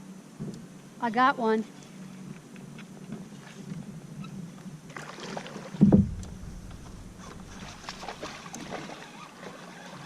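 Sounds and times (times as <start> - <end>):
water and handling sounds: 4.9 - 10.0
loud low thump: 5.8 - 7.8.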